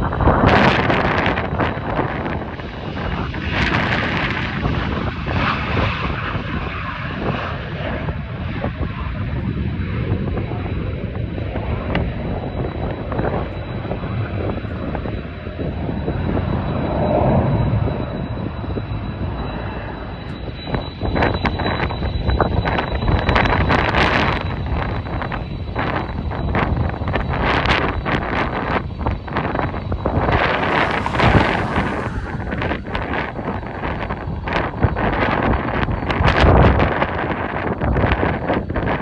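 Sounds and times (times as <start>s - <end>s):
wind buffeting microphone: 27.6s - 37.9s
jet engines roaring: 27.9s - 36.2s.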